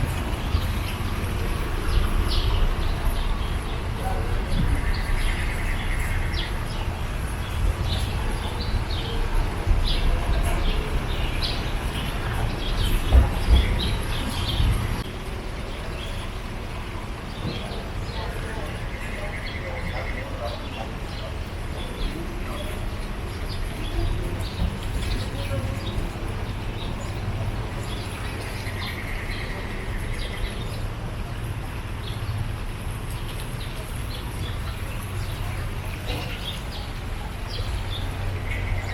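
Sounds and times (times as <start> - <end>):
steady low rumble: 0.0 - 19.3
outdoor background noise: 0.0 - 38.9
small birds chirping: 0.0 - 38.9.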